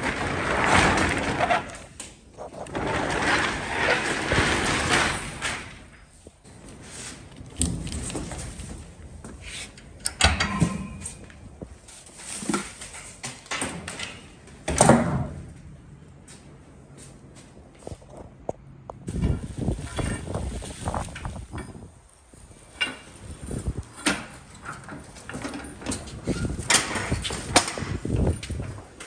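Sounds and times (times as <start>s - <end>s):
roll-up door rattling: 0.0s - 15.6s, 19.2s - 29.0s
metal clunks and bangs: 10.0s - 11.4s.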